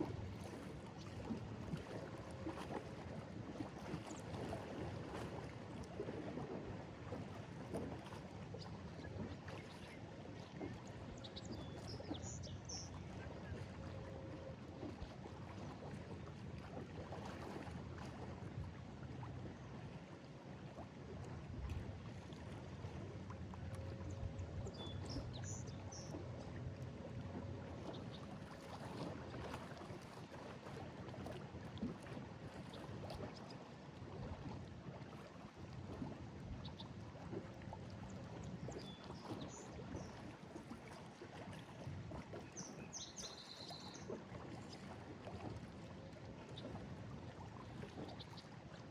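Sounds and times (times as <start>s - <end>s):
waves lapping against a wall: 0.0s - 19.3s, 20.7s - 48.9s.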